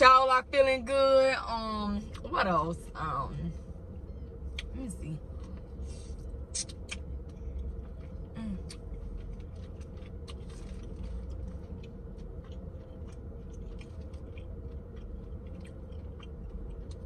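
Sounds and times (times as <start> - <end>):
low hum: 0.0 - 17.0
person chewing: 5.4 - 17.0.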